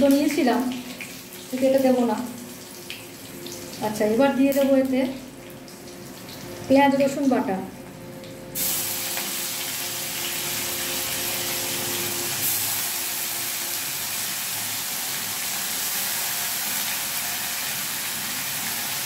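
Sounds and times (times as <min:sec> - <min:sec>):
paste sizzling in hot oil: 0:08.6 - 0:19.0.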